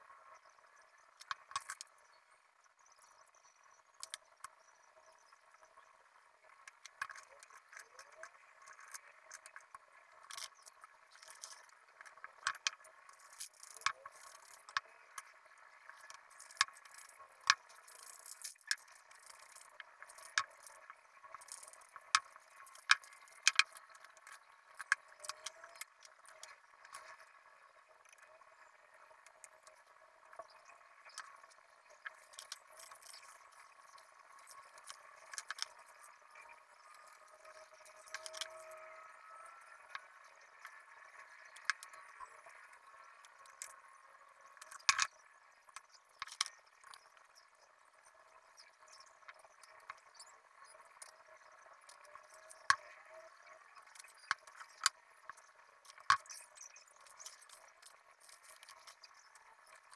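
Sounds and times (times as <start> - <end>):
objects clicking and rattling: 1.2 - 2.0, 6.6 - 27.3, 29.4 - 43.8, 44.5 - 47.5.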